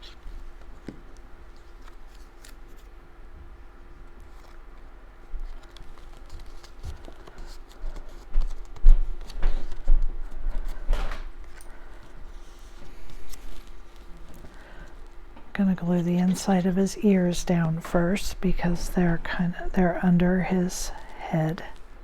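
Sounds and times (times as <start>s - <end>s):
cardstock rustling: 0.3s - 2.9s, 4.2s - 15.2s.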